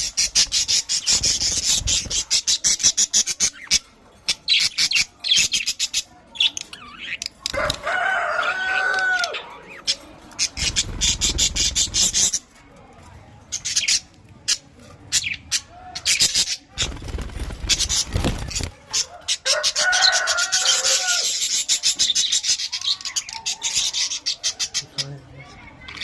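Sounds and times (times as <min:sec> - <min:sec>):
budgerigars chattering: 0:09.3 - 0:12.4.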